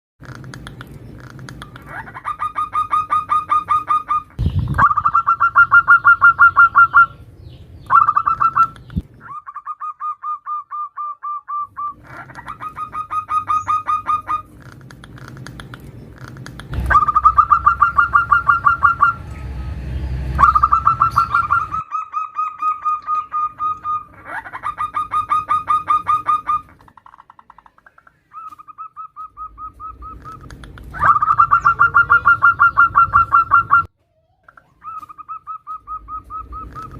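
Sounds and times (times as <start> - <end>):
dove cooing: 16.2 - 19.2, 28.3 - 33.9, 34.5 - 36.9.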